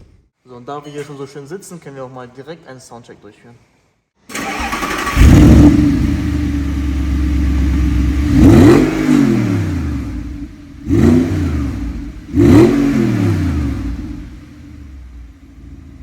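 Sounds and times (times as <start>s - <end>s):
car engine idling and revving: 4.4s - 16.0s.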